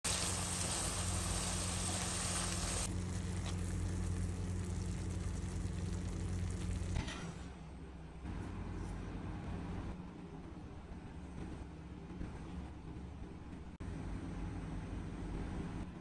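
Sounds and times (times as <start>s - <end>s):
food sizzling in a pan: 0.0s - 7.0s
low hum: 0.2s - 16.0s.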